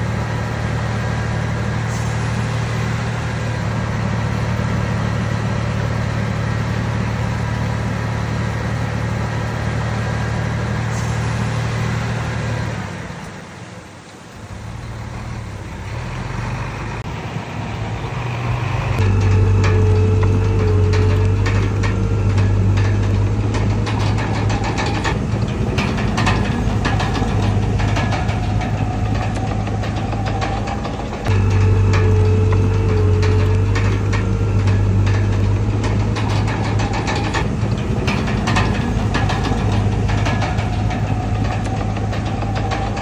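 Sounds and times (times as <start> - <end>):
heavy diesel engine droning: 0.0 - 43.0
whine: 14.0 - 43.0.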